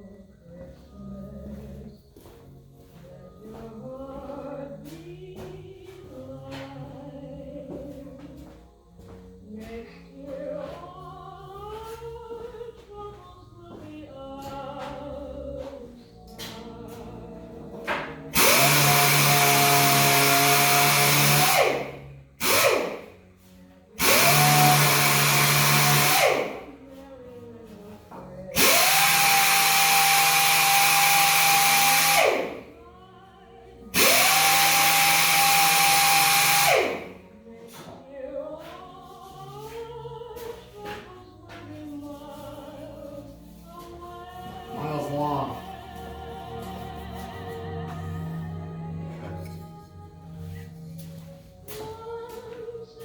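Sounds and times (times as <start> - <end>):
choral background music: 0.0 - 53.0
power tool motor whining: 18.3 - 23.2, 24.0 - 26.7, 28.6 - 32.7, 33.9 - 37.2.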